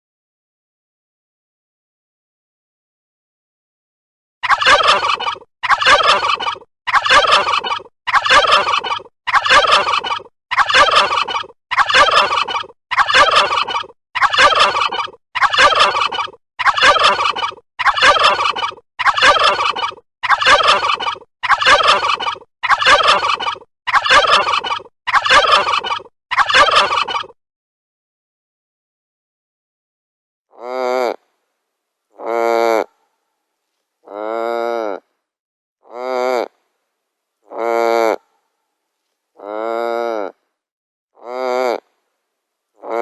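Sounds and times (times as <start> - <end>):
turkey gobbling: 4.4 - 27.2.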